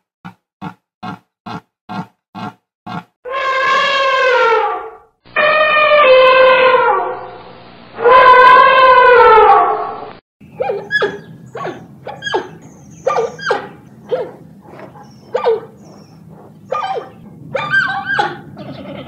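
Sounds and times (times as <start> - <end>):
drawn-out pitched call: 10.4 - 19.0
dog yelping barks: 10.6 - 18.5.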